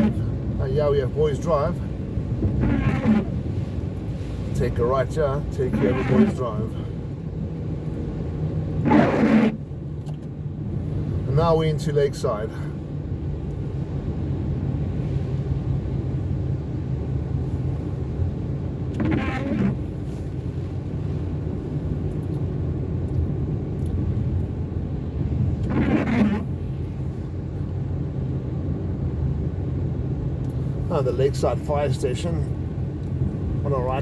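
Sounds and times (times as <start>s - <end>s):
windscreen wipers squeaking: 0.0s - 6.8s, 8.7s - 10.3s, 18.8s - 20.7s, 25.3s - 27.3s
car engine and tyres on wet road: 0.0s - 34.0s.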